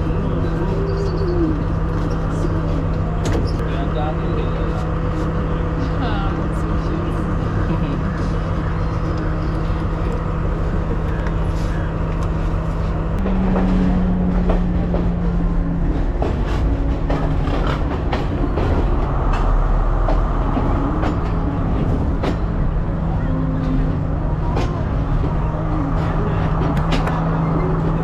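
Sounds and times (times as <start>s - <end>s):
train engine drone: 0.0s - 28.0s
wheels clacking over rail joints: 9.6s - 28.0s.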